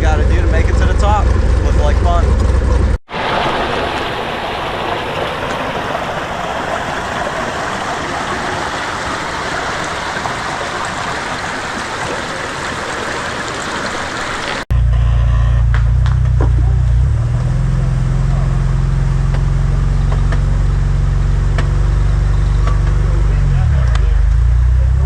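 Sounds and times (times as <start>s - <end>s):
steady rushing noise: 0.6s - 14.1s.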